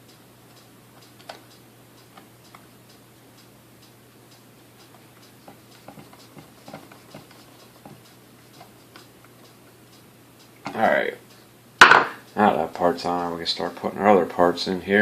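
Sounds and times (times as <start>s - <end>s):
light even ticking: 0.0s - 11.5s
steady low hum: 0.0s - 15.0s.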